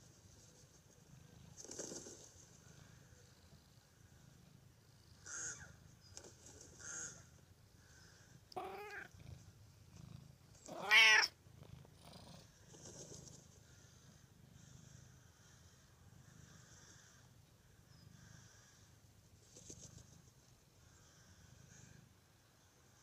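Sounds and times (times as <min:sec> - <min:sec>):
cat meowing: 0:08.6 - 0:09.1, 0:10.7 - 0:11.4.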